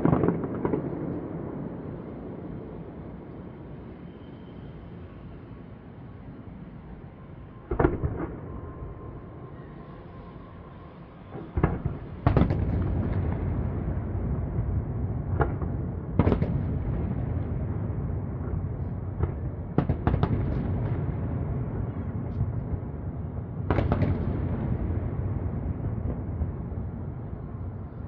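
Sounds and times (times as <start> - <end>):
continuous low rumble: 0.0 - 28.0
fireworks bangs: 11.4 - 13.8, 14.5 - 17.6, 19.2 - 21.2, 23.7 - 24.9.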